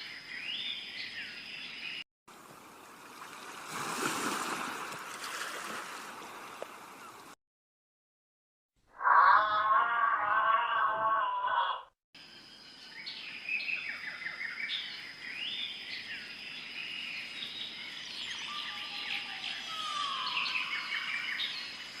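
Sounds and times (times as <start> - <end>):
birds chirping and trilling: 0.0 - 2.0, 8.9 - 22.0
longer lower bird call: 17.7 - 21.7.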